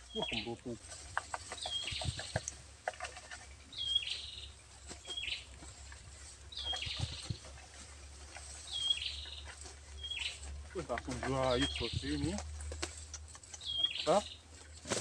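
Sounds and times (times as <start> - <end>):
pole knocking among branches: 0.8 - 3.6, 4.8 - 8.6.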